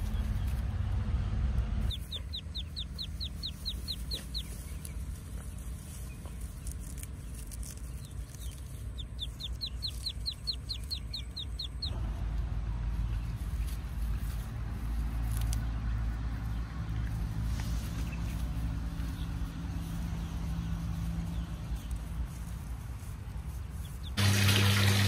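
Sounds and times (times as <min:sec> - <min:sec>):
low steady rumble: 0:00.0 - 0:25.0.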